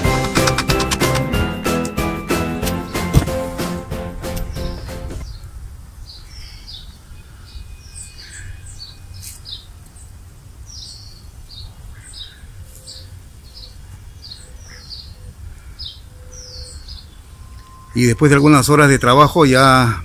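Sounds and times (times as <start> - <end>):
small birds chirping: 4.4 - 20.0.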